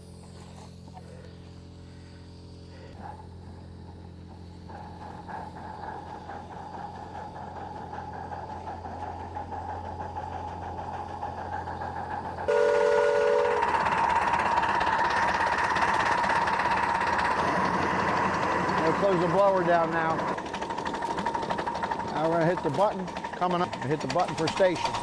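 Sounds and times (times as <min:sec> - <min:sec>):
steam locomotive exhaust chuffing: 0:00.0 - 0:25.0
steady hiss of steam: 0:03.6 - 0:22.7
steam whistle chord: 0:12.5 - 0:14.7.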